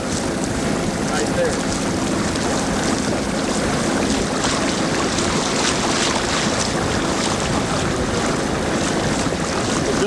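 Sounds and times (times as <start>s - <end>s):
boat motor running: 0.0s - 10.0s
water rushing past hull: 0.0s - 10.0s
wind buffeting microphone: 0.0s - 10.0s.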